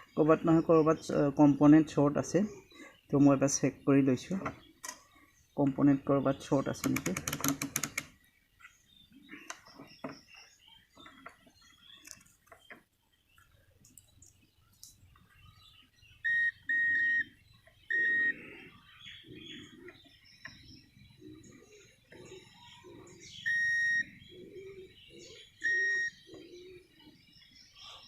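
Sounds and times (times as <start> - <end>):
test probes clicking: 6.8 - 8.2
multimeter high-pitched beeps: 16.2 - 18.4, 23.4 - 24.1, 25.6 - 26.2.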